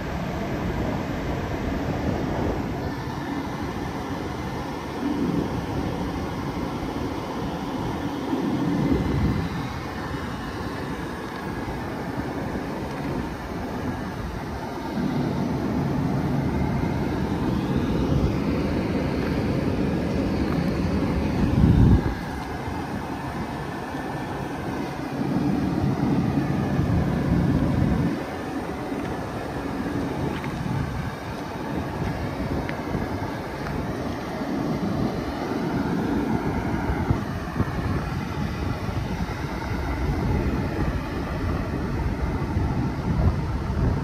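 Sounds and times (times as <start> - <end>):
faint electric whine: 0.0 - 44.0.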